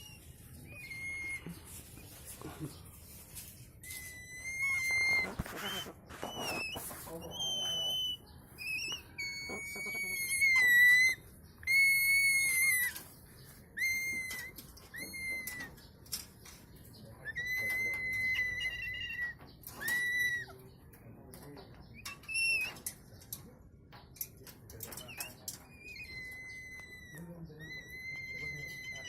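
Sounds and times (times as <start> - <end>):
cockatoo whistling: 0.0 - 1.7, 3.8 - 13.0, 13.8 - 15.8, 17.2 - 20.5, 25.0 - 29.0.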